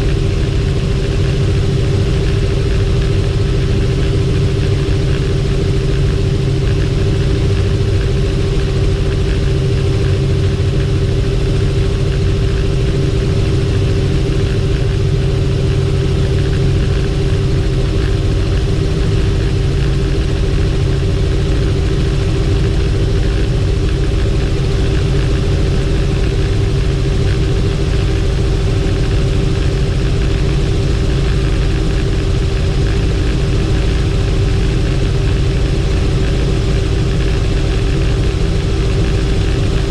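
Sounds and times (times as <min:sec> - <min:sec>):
helicopter rotor and turbine drone: 0:00.0 - 0:39.9.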